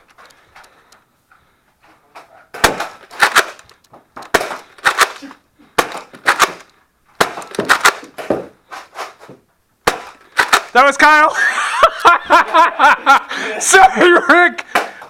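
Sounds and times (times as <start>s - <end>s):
foam blaster firing cracks: 2.6s - 3.7s, 4.3s - 8.3s, 9.8s - 10.8s.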